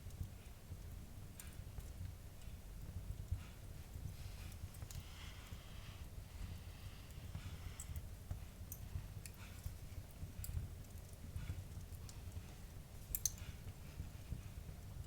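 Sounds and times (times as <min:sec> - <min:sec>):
low rumble of flames: 0:00.0 - 0:15.0
wood fire crackling: 0:00.0 - 0:15.0
fire popping and snapping: 0:10.4 - 0:14.0.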